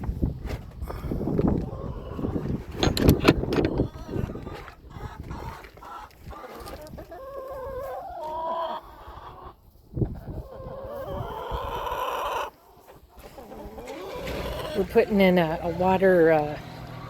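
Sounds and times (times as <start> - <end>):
hens clucking: 0.1 - 17.0.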